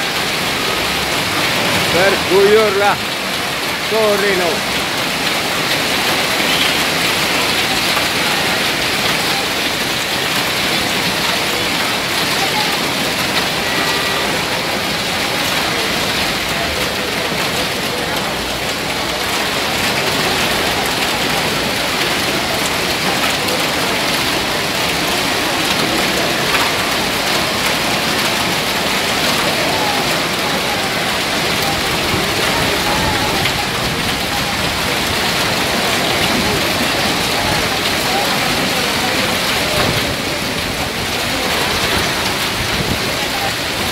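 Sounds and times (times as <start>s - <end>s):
hail and heavy rain pelting: 0.0s - 43.9s.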